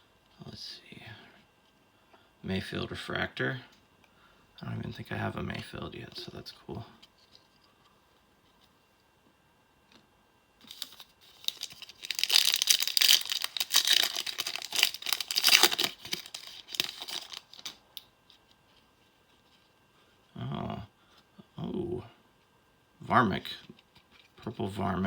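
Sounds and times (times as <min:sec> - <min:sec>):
plastic wrapper tearing and crinkling: 0:10.6 - 0:18.1.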